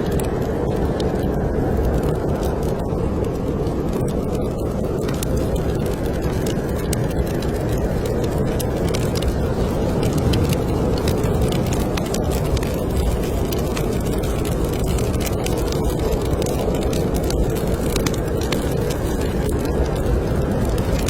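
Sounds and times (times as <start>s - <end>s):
snowstorm wind rumble: 0.0s - 21.0s
wood fire crackling: 0.0s - 21.0s.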